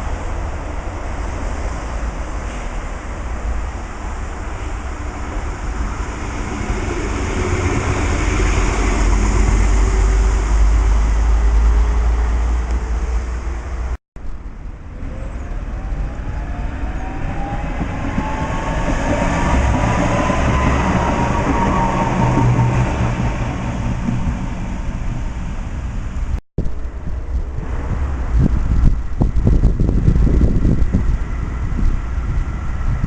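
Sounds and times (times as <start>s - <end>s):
tram rumbling on rails: 0.0s - 33.0s
tram motors whining: 14.9s - 26.4s.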